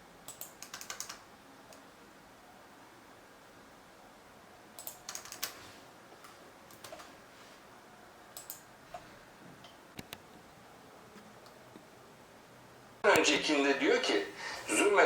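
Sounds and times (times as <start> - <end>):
computer keyboard typing: 0.3 - 1.3, 4.8 - 5.6, 6.7 - 7.1, 8.4 - 8.6.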